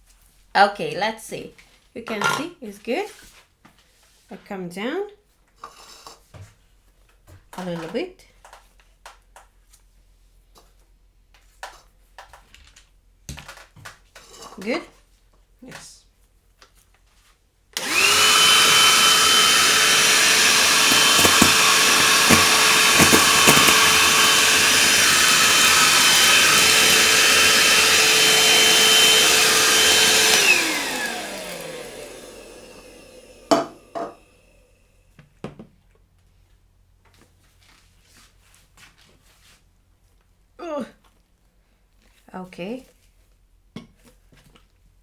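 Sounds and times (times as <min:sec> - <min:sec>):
handheld vacuum cleaner motor whine: 0:17.8 - 0:34.2.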